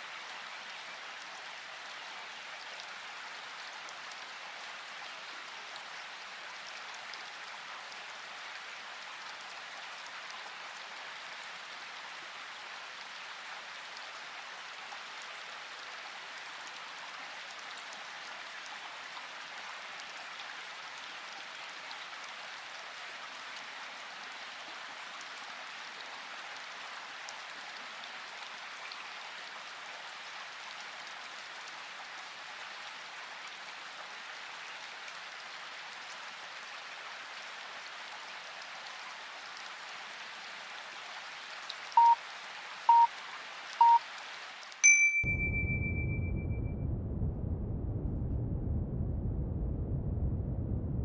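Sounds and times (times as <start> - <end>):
steady rain-like hiss: 0.0 - 46.4
timer beeps: 44.8 - 46.7
low rumbling noise: 45.3 - 51.0.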